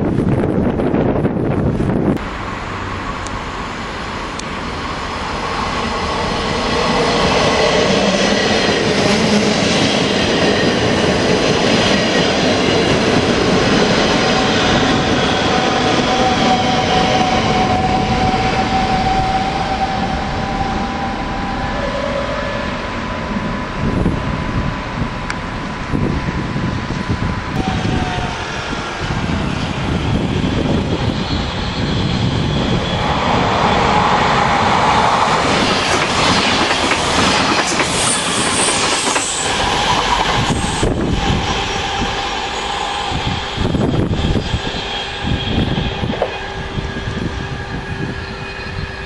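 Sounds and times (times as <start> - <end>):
train wheel and rail noise: 0.0 - 49.0
thin falling whines: 38.0 - 49.0.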